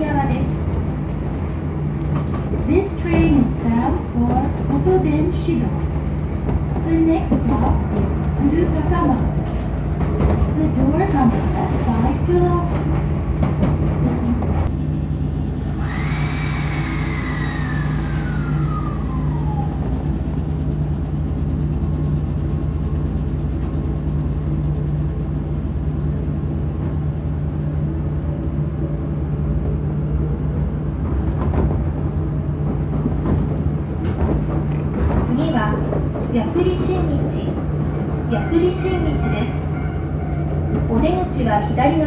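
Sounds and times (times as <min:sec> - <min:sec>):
train running hum: 0:00.0 - 0:42.0
train motor whine: 0:15.5 - 0:20.6.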